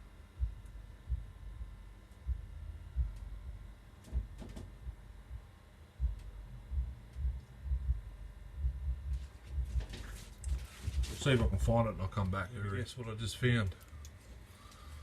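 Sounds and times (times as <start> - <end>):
soft low thuds: 0.0 - 11.9.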